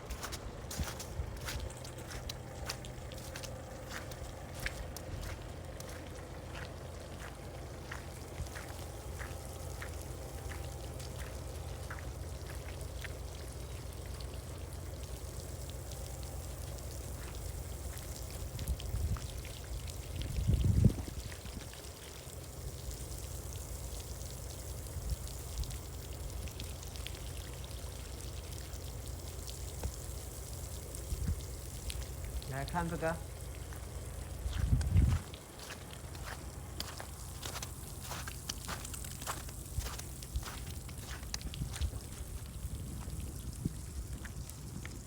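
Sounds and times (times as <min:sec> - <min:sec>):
footsteps: 0:00.0 - 0:12.7, 0:33.7 - 0:42.5
running water rushing: 0:00.0 - 0:20.2, 0:20.9 - 0:44.4.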